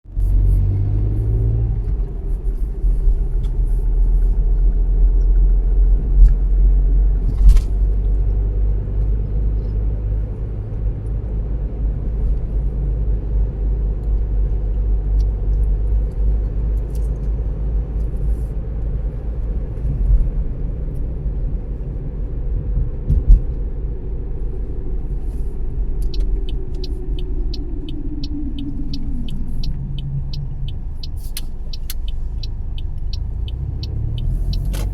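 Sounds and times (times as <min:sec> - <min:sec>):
car road rumble: 0:00.0 - 0:34.9
regular ticking: 0:25.2 - 0:34.9.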